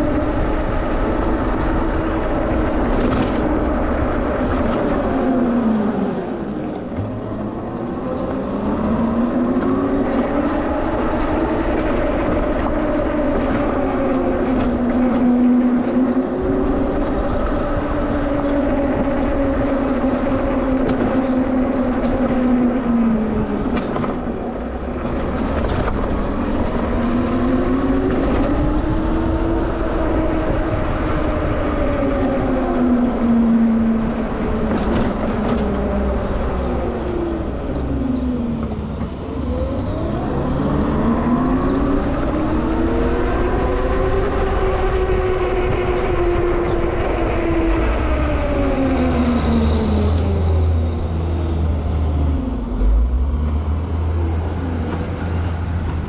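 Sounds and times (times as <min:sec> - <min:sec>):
low wind rumble: 0:00.0 - 0:56.0.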